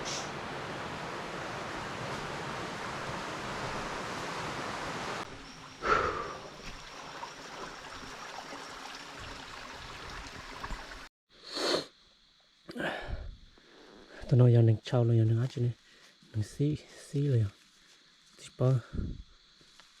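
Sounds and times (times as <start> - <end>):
running water: 0.0 - 11.1.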